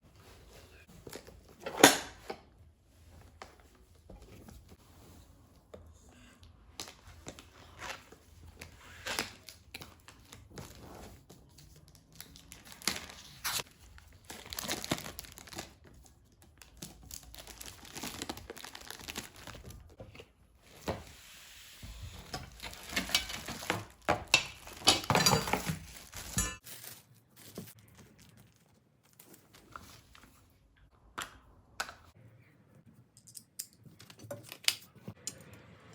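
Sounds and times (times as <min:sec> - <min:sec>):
packaging crinkling and tearing: 0:11.7 - 0:20.0, 0:22.5 - 0:25.0.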